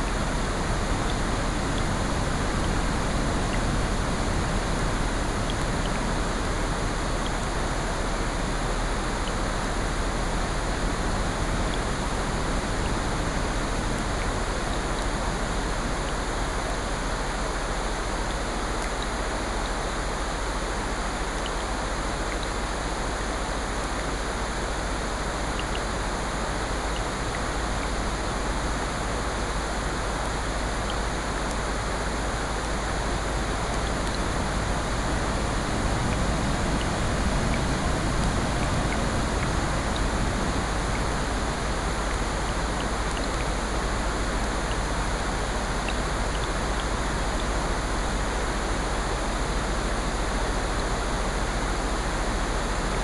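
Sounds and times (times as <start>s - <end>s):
steady rain hiss: 0.0s - 53.0s
ocean surf: 31.7s - 53.0s.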